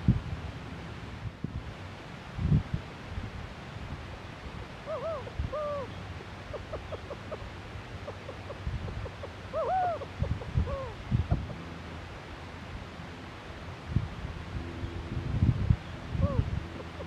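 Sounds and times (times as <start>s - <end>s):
wind rumble on microphone: 0.0s - 17.0s
owl hooting: 4.8s - 7.4s, 8.0s - 11.6s, 16.2s - 17.0s.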